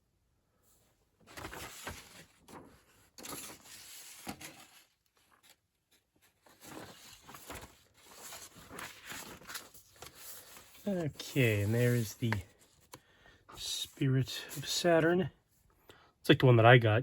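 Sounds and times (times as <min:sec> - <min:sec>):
paper rustling: 0:01.2 - 0:14.8.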